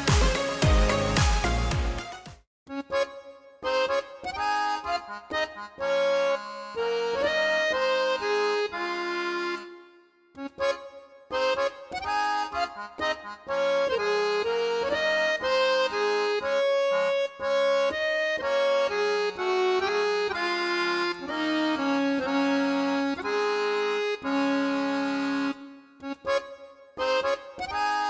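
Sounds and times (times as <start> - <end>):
melody over held chords: 0.0 - 26.4.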